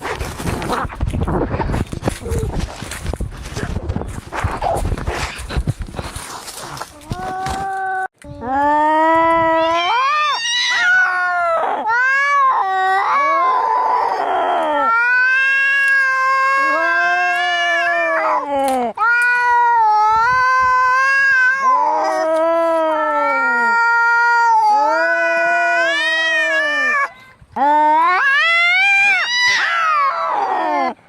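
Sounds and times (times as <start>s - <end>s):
cats caterwauling: 7.0s - 31.0s.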